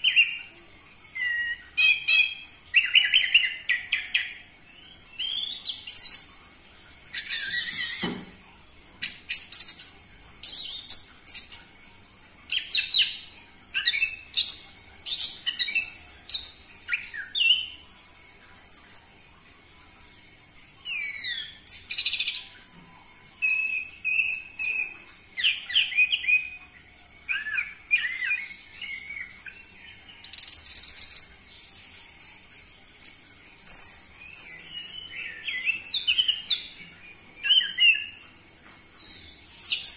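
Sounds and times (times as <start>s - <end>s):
thrush singing whistled notes: 23.4s - 26.6s.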